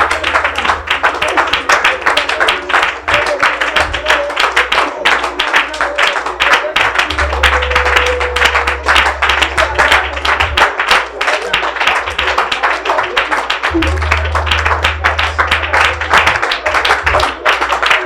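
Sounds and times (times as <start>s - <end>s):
low bass note: 0.0s - 2.2s, 7.1s - 11.2s, 13.6s - 17.7s
congregation clapping: 0.0s - 18.0s
music: 0.0s - 18.0s.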